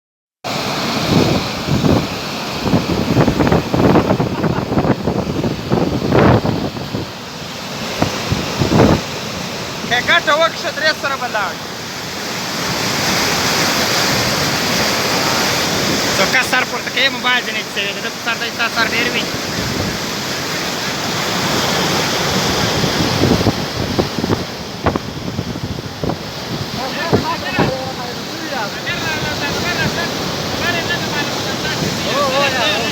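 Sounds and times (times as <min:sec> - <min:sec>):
wind buffeting microphone: 0:01.0 - 0:09.9, 0:19.1 - 0:28.4.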